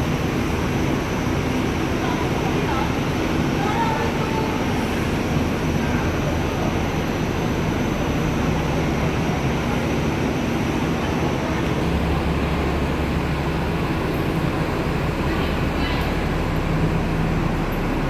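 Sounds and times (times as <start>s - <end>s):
vehicle engine hum: 9.4s - 18.0s.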